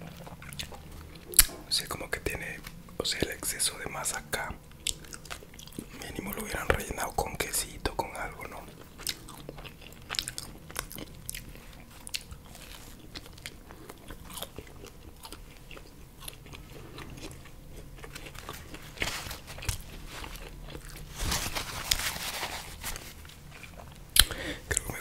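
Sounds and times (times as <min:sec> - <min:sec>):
chewing pizza crust: 0:00.0 - 0:25.0
paper napkin rustling: 0:18.4 - 0:23.7.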